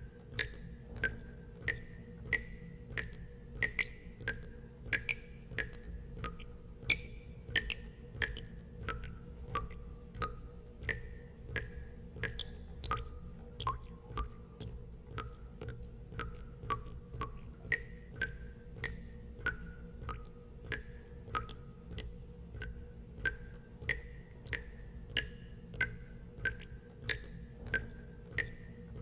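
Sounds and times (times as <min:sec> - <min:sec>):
steady low hum: 0:00.0 - 0:29.0
water drops plinking into water: 0:00.2 - 0:29.0.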